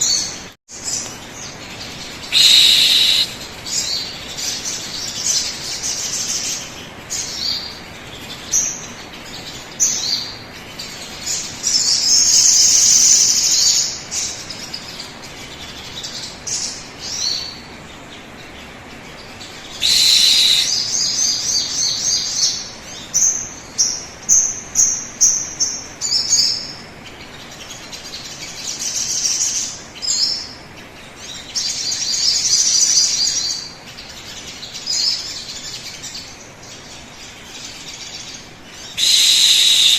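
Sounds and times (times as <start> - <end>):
bird song trilling: 2.2 - 4.2, 19.6 - 22.3, 38.8 - 39.9.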